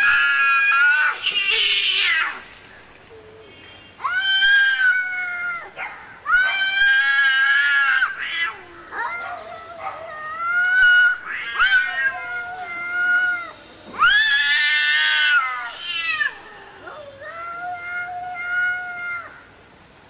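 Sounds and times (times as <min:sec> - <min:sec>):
cat yowling: 0:04.0 - 0:19.4.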